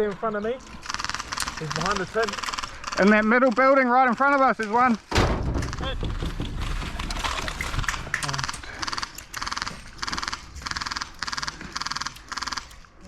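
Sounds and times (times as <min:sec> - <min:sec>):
airsoft gun full-auto bursts: 0:00.8 - 0:04.6, 0:08.5 - 0:13.0.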